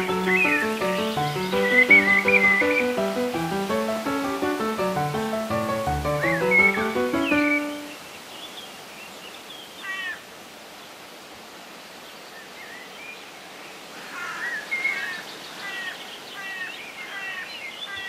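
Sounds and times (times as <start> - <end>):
birds chirping: 0.0 - 8.8
steady background hiss: 0.0 - 18.0.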